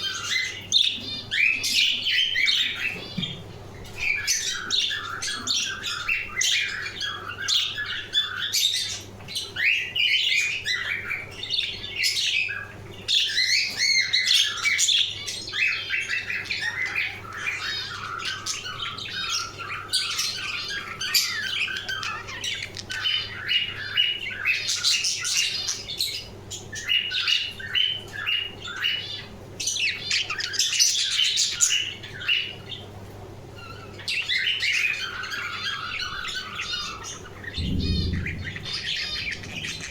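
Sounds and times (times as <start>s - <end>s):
budgerigars chattering: 0.0s - 32.9s, 33.6s - 39.9s
faint low hum: 35.0s - 39.9s.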